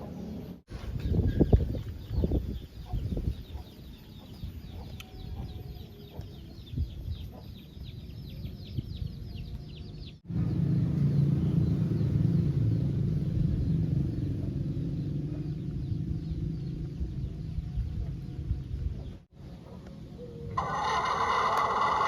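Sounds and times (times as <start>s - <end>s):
steady low rumble: 10.2s - 19.2s
chickens clucking: 19.6s - 22.0s.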